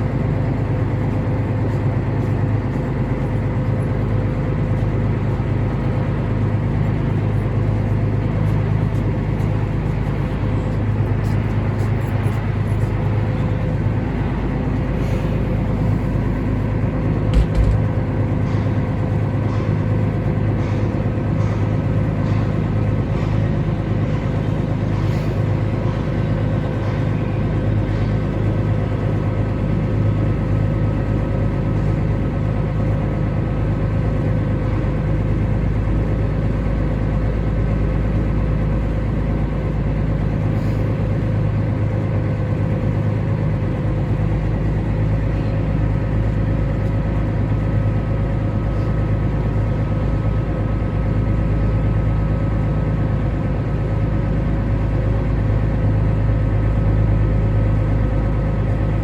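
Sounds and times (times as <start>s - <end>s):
diesel engine droning: 0.0s - 59.0s.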